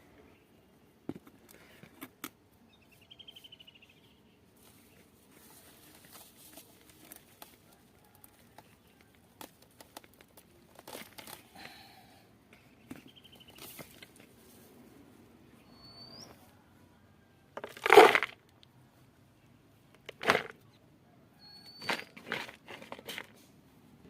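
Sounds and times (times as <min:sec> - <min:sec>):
crinkling and rustling: 0:04.6 - 0:11.7, 0:17.6 - 0:18.6, 0:19.9 - 0:20.7, 0:21.8 - 0:23.5.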